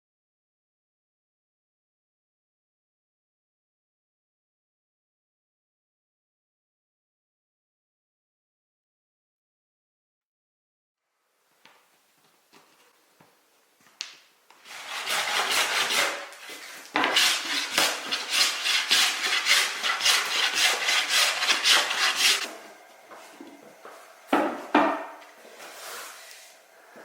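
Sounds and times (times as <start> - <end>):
hand sanding wood: 14.6 - 22.5, 24.4 - 26.6.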